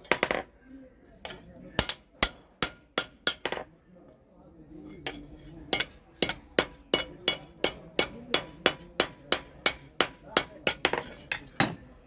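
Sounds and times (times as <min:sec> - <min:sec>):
hammer striking steel on anvil: 0:01.3 - 0:03.6, 0:05.1 - 0:11.8.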